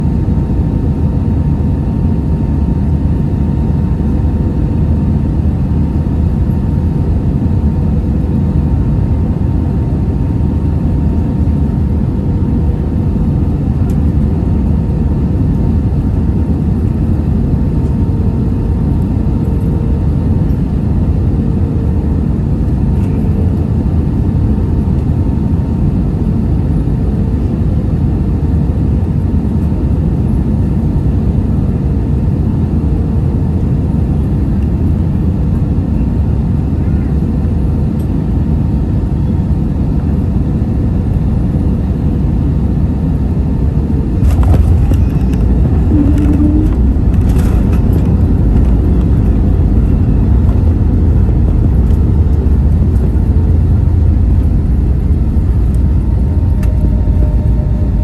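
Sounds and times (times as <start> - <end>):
airliner engines rumbling: 0.0 - 58.0
faint steady hum: 30.2 - 58.0
rushing air: 44.1 - 58.0.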